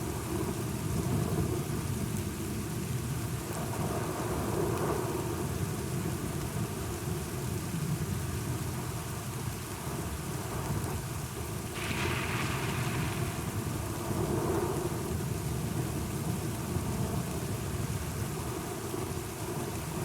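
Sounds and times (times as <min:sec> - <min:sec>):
steady rain: 0:00.0 - 0:20.0
rolling thunder: 0:11.8 - 0:15.6.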